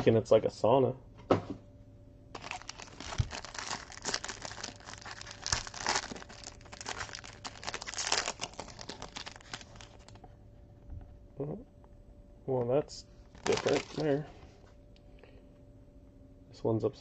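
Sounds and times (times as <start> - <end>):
plastic wrap crinkling and tearing: 2.4 - 10.2, 13.3 - 14.2.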